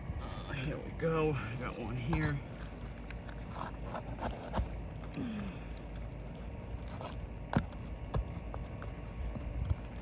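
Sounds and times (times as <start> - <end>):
steady low rumble: 0.0 - 10.0
tool scraping: 2.6 - 4.8.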